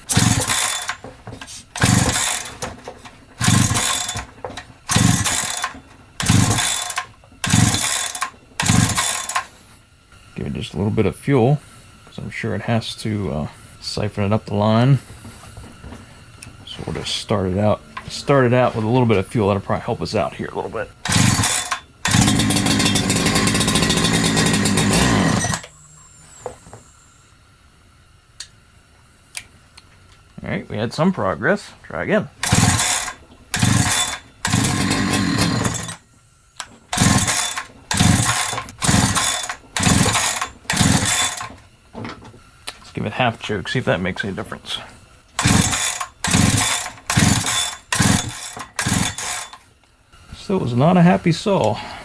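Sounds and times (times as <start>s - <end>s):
chainsaw recoil starter pulls: 0.0s - 9.6s, 21.0s - 25.8s, 32.4s - 36.0s, 36.6s - 41.7s, 45.4s - 49.7s.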